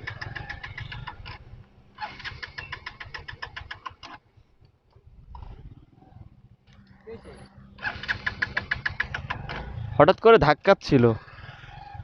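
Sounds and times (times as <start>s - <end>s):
motorcycle starter cranking: 0.0s - 4.2s, 7.8s - 9.8s.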